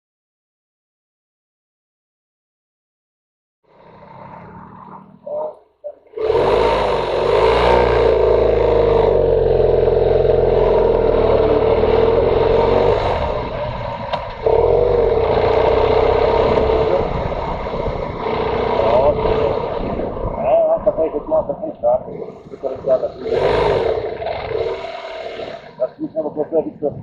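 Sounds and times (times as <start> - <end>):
motorcycle engine under throttle: 3.7 - 5.2, 6.1 - 21.2, 22.1 - 26.0
wind noise: 11.8 - 27.0.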